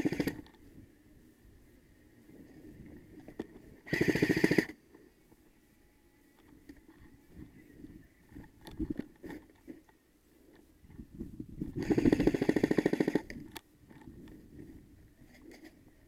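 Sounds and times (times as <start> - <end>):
airsoft gun full-auto burst: 0.0 - 0.4, 3.8 - 4.8, 11.8 - 13.3.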